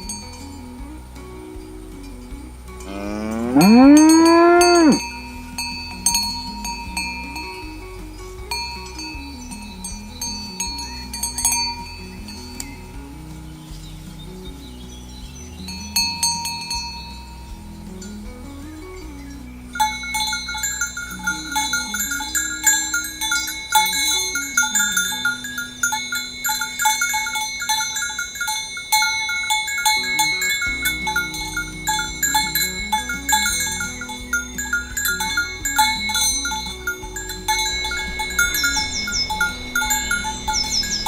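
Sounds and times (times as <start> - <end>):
cowbells clanking: 0.0 - 41.0
low tone rising and falling: 0.7 - 5.6, 30.8 - 41.0
quick high chirps: 19.2 - 41.0.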